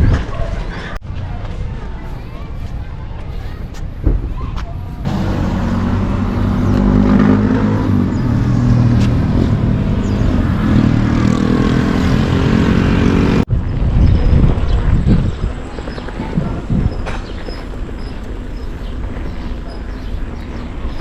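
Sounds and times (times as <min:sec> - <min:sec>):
vehicle engine running: 0:05.0 - 0:13.5.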